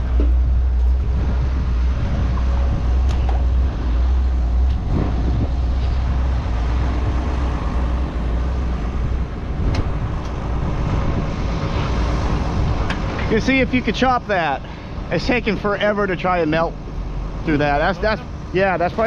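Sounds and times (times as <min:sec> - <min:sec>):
heavy diesel engine rumbling: 0:00.0 - 0:19.0.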